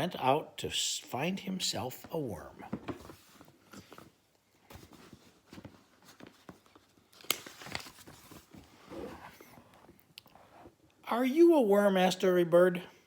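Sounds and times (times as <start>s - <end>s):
paper pages rustling: 2.7s - 10.0s.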